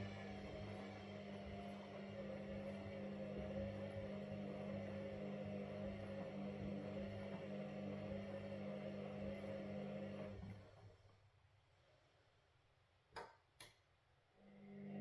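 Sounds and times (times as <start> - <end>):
washing machine motor hum: 0.0 - 11.3, 14.4 - 15.0.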